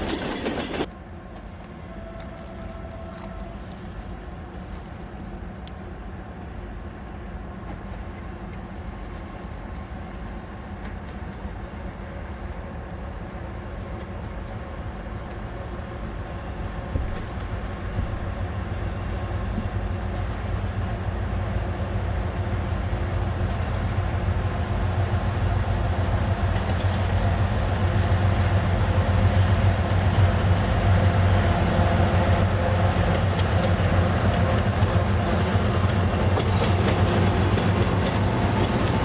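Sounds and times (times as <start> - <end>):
diesel train engine hum: 0.0 - 39.0.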